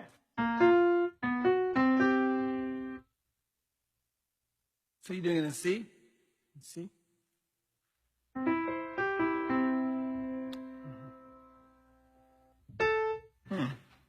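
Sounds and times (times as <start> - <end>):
piano notes and chord: 0.4 - 3.0, 8.4 - 13.3.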